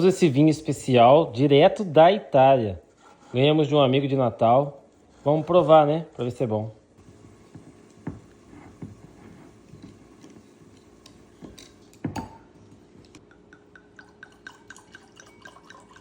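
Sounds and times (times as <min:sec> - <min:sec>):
glasses clinking: 0:11.3 - 0:16.0.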